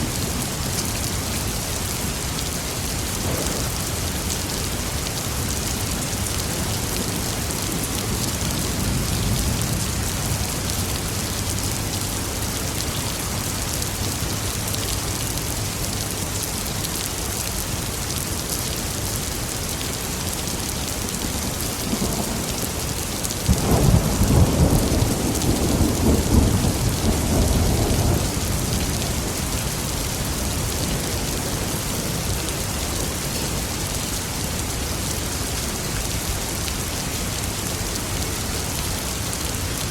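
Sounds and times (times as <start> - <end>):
heavy rain: 0.0 - 39.9
sharp thunderclap: 3.2 - 4.1, 23.5 - 28.7
thunder rumbling: 3.2 - 4.3, 23.4 - 30.0.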